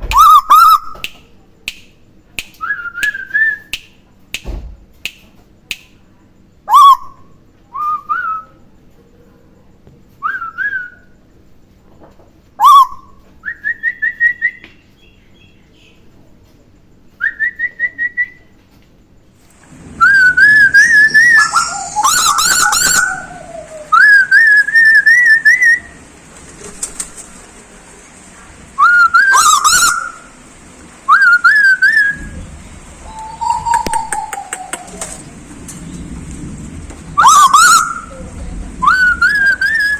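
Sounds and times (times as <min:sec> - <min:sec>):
bird whistling: 0:00.0 - 0:01.1, 0:06.7 - 0:08.5, 0:12.6 - 0:15.6, 0:19.7 - 0:26.0, 0:28.8 - 0:30.4, 0:31.1 - 0:32.4, 0:33.0 - 0:35.4, 0:37.2 - 0:38.2, 0:38.8 - 0:39.9
steady high hiss: 0:18.4 - 0:39.9
person whistling: 0:20.0 - 0:25.9, 0:33.0 - 0:35.1.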